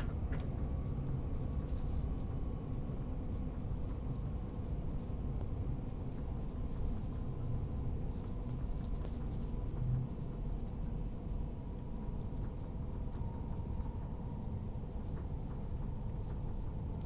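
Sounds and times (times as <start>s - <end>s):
faint steady hum: 0.0s - 17.0s
train rumbling inside carriage: 0.0s - 17.0s.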